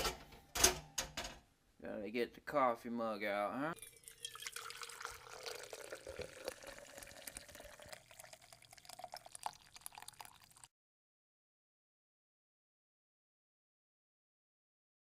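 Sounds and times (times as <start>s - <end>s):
coffee pouring into a mug: 3.8s - 10.7s.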